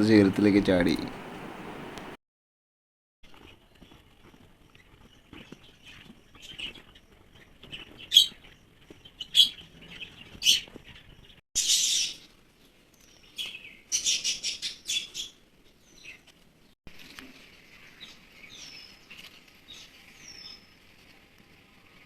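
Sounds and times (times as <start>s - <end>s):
small bird chirping: 3.3s - 16.4s, 17.7s - 20.8s.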